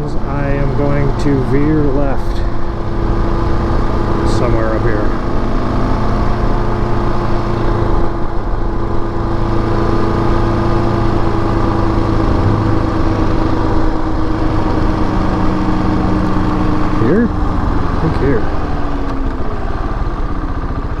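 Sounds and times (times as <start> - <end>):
motorcycle engine running: 8.2 - 21.0.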